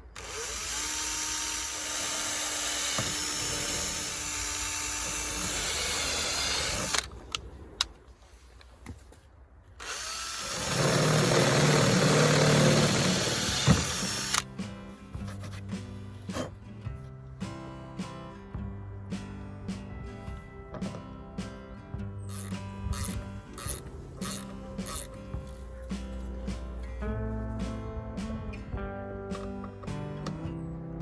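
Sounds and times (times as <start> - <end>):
power drill running: 0.0 - 7.1, 9.8 - 14.5, 22.3 - 25.6.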